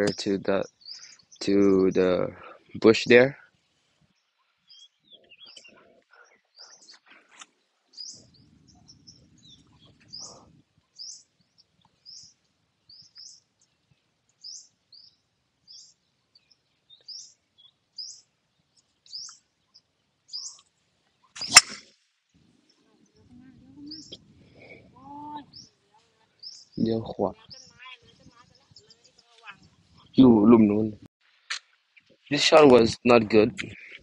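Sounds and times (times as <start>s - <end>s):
bird chirping: 0.0s - 30.9s
golf club striking ball: 21.4s - 21.9s.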